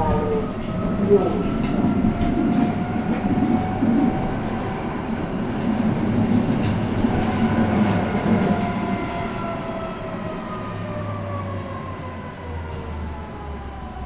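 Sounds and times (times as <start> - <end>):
tram motor whine falling in pitch: 0.0 - 4.9
tram wheels rumbling on rails: 0.0 - 14.0.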